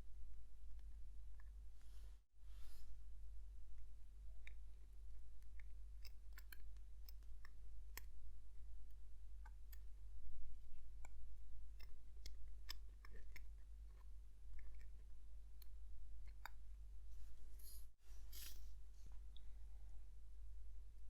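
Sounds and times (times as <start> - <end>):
small metal tool clicks: 6.0 - 8.1.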